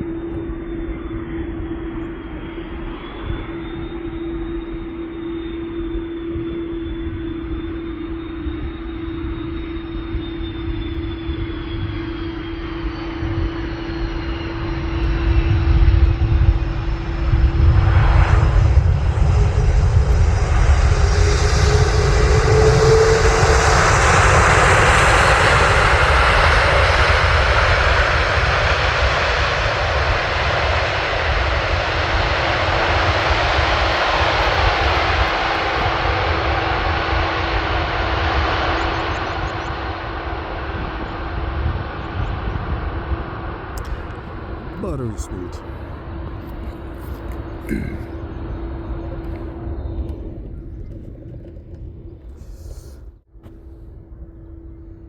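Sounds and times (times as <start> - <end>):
jet airliner landing: 0.0 - 55.0.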